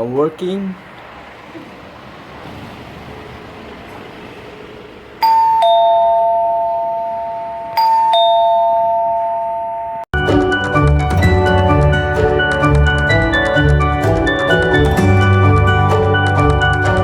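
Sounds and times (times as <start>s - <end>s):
two-tone doorbell chime: 5.2s - 10.1s.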